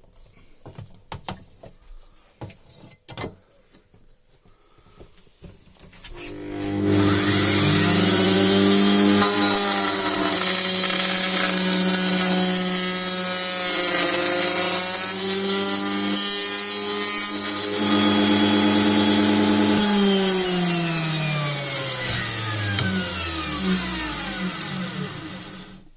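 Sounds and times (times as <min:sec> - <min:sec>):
milling cutter cutting metal: 0:06.2 - 0:25.9.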